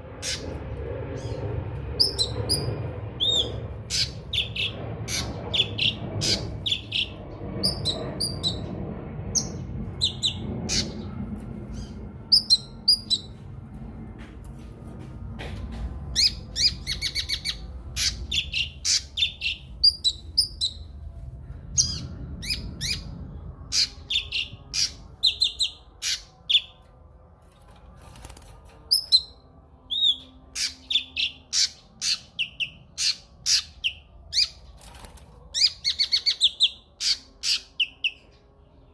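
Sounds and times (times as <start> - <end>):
faint low rumble: 0.0 - 38.9.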